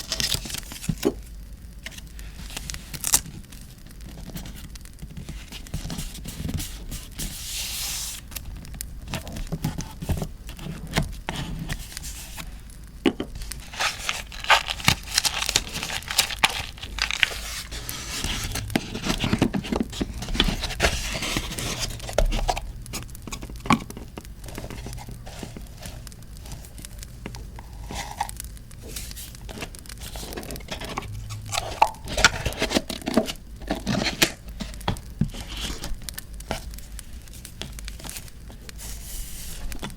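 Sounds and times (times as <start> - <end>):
paper crinkling and tearing: 0.0 - 1.2, 1.9 - 4.7, 13.4 - 39.9.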